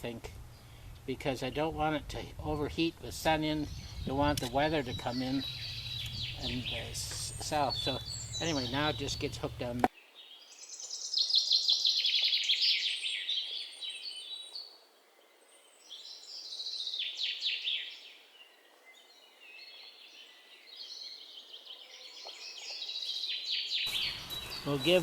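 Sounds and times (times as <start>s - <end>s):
songbirds chirping trills: 0.0s - 25.0s.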